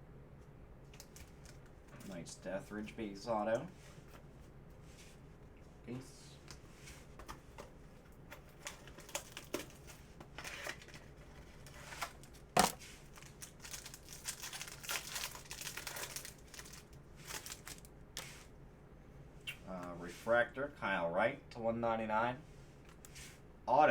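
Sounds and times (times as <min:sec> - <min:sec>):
card packaging crinkling and tearing: 0:00.9 - 0:02.2, 0:08.3 - 0:18.4.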